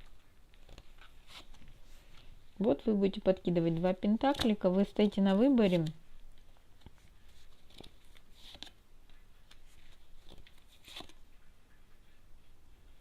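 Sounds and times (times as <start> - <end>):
paper rustling: 0.0 - 2.7, 3.6 - 8.8, 9.4 - 11.2.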